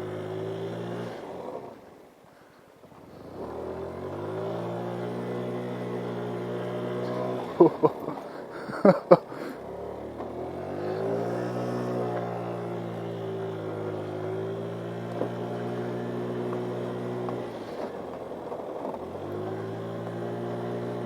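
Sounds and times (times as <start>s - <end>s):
scooter engine revving: 0.0s - 2.0s, 2.9s - 21.0s.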